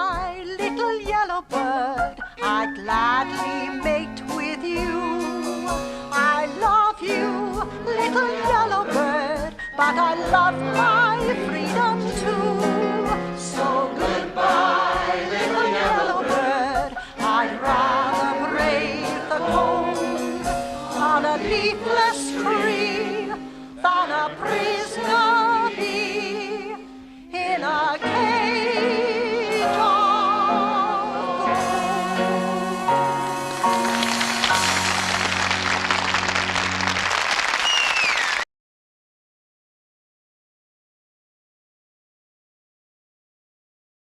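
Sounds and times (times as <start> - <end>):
orchestral accompaniment: 3.0 - 26.5, 28.1 - 37.4.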